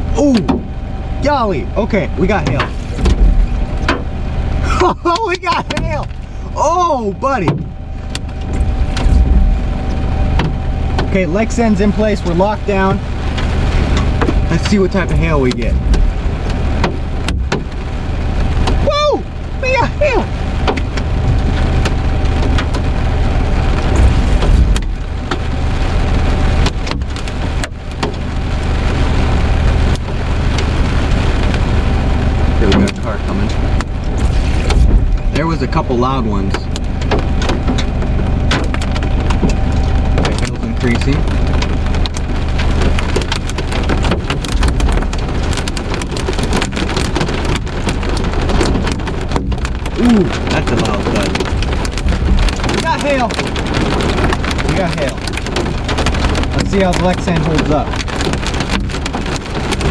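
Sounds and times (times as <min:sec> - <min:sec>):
hail and rain pelting a car: 0:00.0 - 0:59.9
steady low rumble: 0:00.0 - 0:59.9
hailstones knocking on a car: 0:34.8 - 0:59.9.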